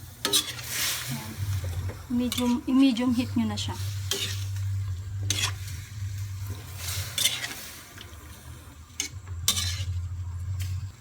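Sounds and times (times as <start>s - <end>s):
faint sizzle: 0.0s - 11.0s
spoon scraping a pot: 0.2s - 1.0s, 3.8s - 5.8s, 6.4s - 10.9s.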